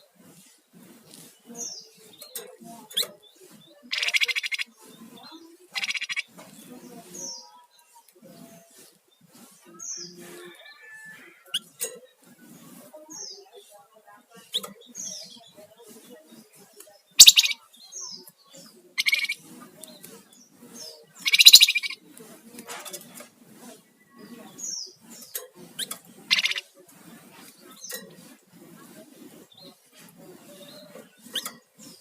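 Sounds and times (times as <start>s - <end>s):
songbird whistles and buzzy calls: 17.2s - 17.6s, 21.2s - 22.0s.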